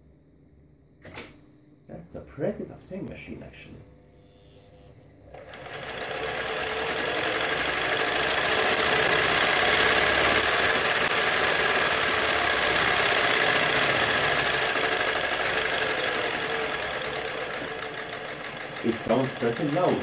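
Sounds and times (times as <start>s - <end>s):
sewing machine motor running: 5.3s - 20.0s.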